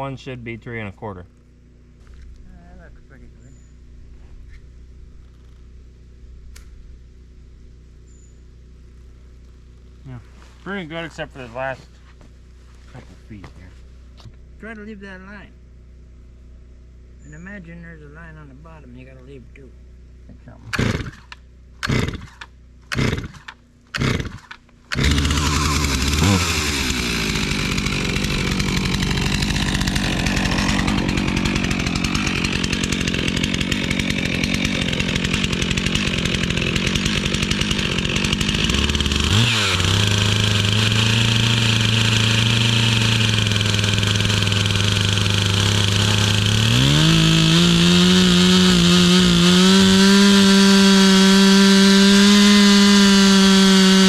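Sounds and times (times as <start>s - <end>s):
chainsaw pull cord tugs: 20.6s - 54.0s
chainsaw cutting wood: 20.7s - 54.0s.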